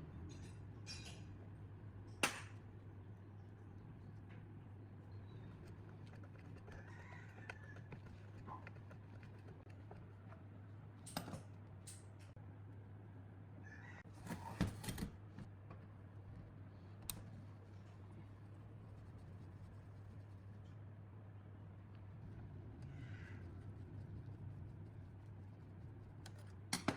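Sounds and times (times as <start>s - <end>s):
steady low hum: 15.1s - 26.9s.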